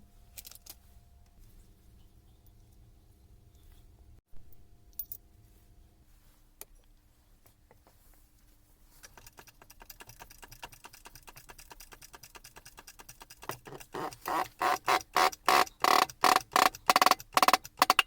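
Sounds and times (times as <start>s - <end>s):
rapid light metallic clicking: 9.0s - 18.0s.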